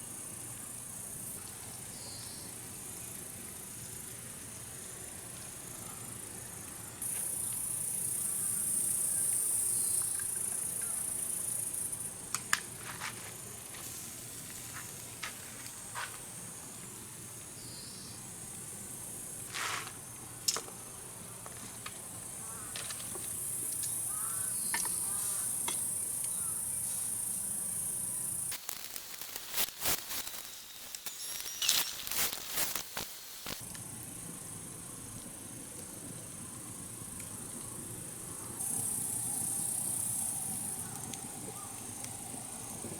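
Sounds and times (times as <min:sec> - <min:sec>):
insects chirping: 0:00.0 - 0:42.9
sharp clicks: 0:28.5 - 0:33.6.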